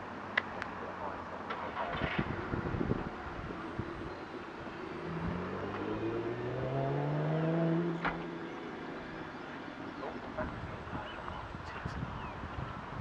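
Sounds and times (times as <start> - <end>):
motor hum rising in pitch: 3.8 - 8.4.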